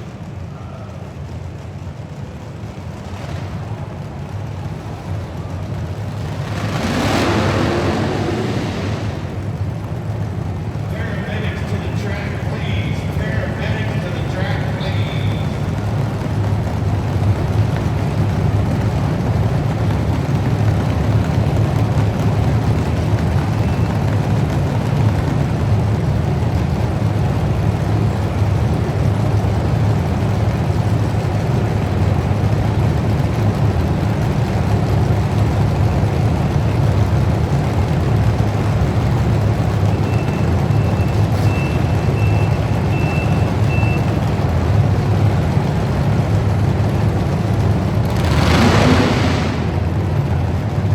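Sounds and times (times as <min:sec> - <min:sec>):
truck engine rumbling: 0:00.0 - 0:50.9
faint high beep: 0:39.9 - 0:44.1.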